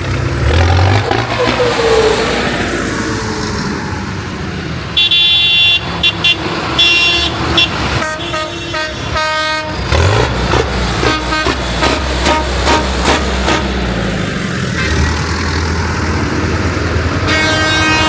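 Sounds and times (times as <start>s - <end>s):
tractor engines running: 0.0s - 18.0s
low-pitched tractor horn blasts: 5.0s - 9.8s, 11.0s - 13.7s, 17.2s - 18.0s
high-pitched tractor horn toots: 5.0s - 10.2s, 11.0s - 13.8s, 17.2s - 18.0s.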